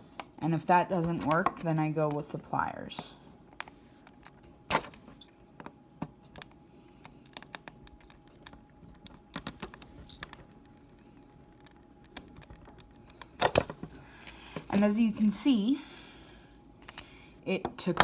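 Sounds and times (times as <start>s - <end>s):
plastic clicks and cracks: 5.6s - 10.4s, 11.6s - 13.8s.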